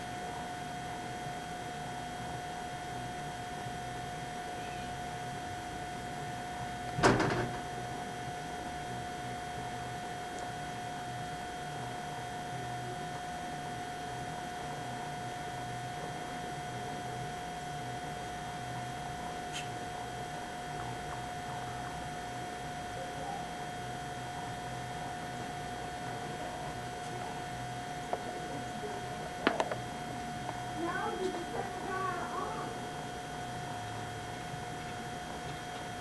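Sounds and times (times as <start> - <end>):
electrical hum with whine: 0.0 - 36.0.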